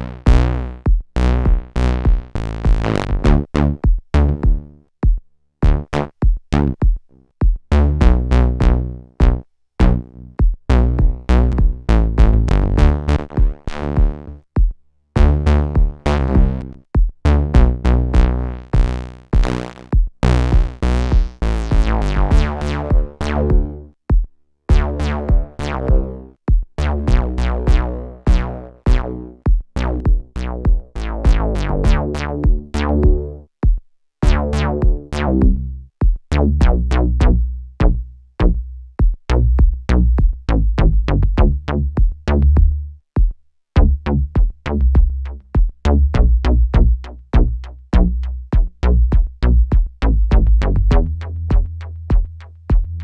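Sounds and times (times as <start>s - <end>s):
percussive hits: 18.8s - 36.8s.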